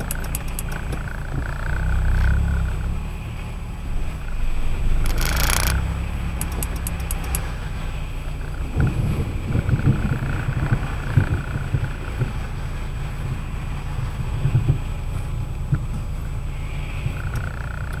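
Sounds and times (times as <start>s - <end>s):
light ticks: 0.0s - 1.8s, 5.0s - 7.5s
tyre rumble on wet road: 0.0s - 18.0s.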